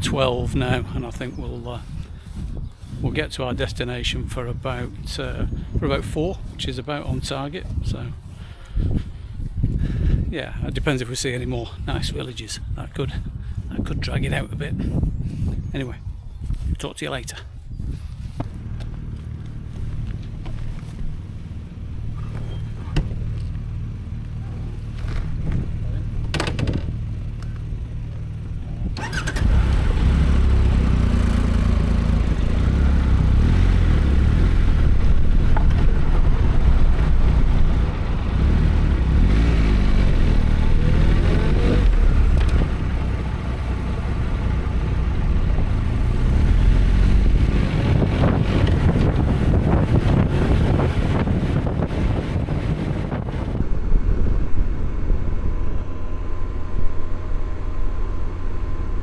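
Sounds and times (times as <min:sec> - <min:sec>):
wind rumble: 0:00.0 - 0:59.0
motorcycle engine accelerating: 0:18.0 - 0:59.0.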